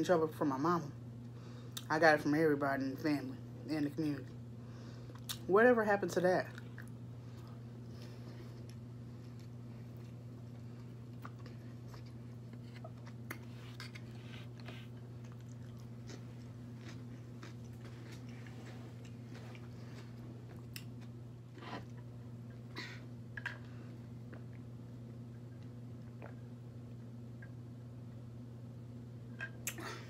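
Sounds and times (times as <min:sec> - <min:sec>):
person chewing: 0:06.5 - 0:22.6.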